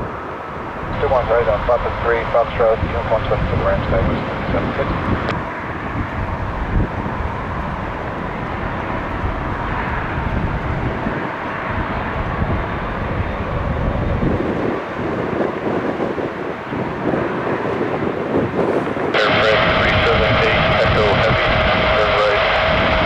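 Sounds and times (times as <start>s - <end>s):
jet engine noise: 0.0s - 23.0s
wind buffeting microphone: 0.0s - 23.0s
faint whine: 0.4s - 14.4s, 19.1s - 23.0s.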